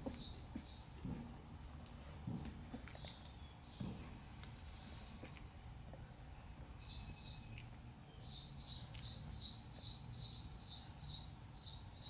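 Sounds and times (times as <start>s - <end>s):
bird chirping: 0.0s - 1.0s, 2.9s - 4.0s, 6.0s - 12.0s.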